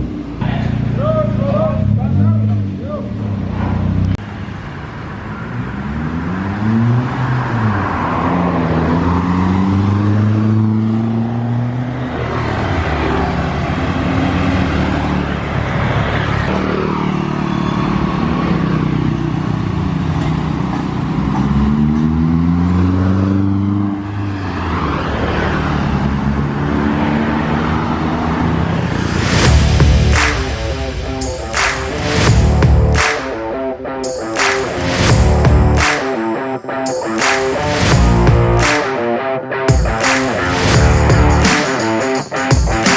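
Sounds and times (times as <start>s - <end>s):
car engine revving: 0.0s - 20.2s, 20.9s - 42.9s.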